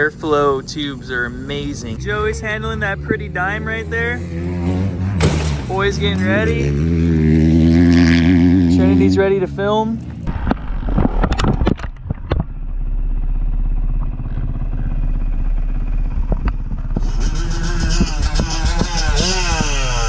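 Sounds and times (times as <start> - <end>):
dirt bike engine revving: 0.0 - 11.2, 12.5 - 20.0
sharp knocks and clatters: 5.1 - 6.5.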